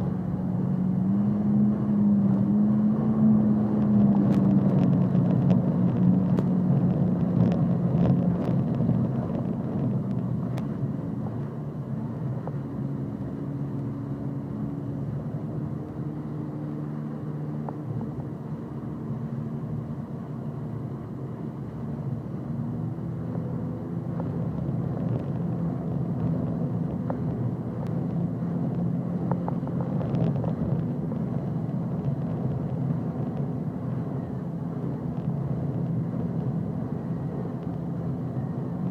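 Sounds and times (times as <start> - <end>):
jet ski engine droning: 0.0 - 8.4, 9.0 - 24.1.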